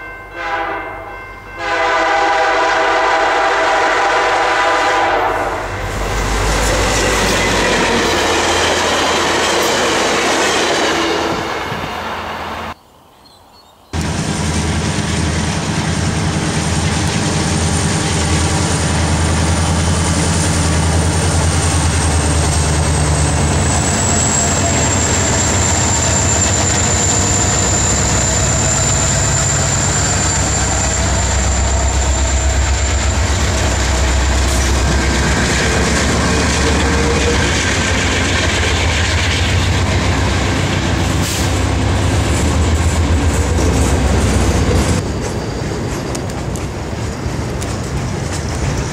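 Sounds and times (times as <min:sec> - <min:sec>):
freight cars wheel-on-rail noise: 0:00.0 - 0:12.8, 0:14.0 - 0:48.9
diesel locomotive engine rumble: 0:01.4 - 0:12.8, 0:14.0 - 0:48.9.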